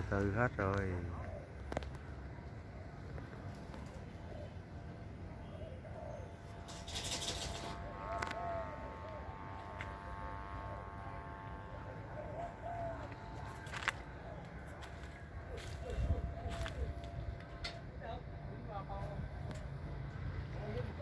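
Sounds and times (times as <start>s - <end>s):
doves cooing: 0.0s - 21.0s
kite flutes humming: 4.5s - 17.6s.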